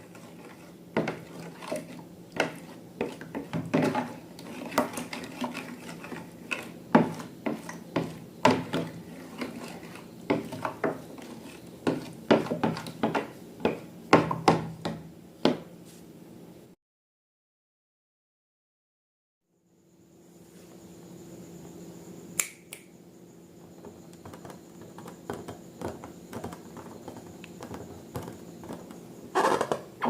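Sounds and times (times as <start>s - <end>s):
faint steady hum: 19.5s - 30.0s.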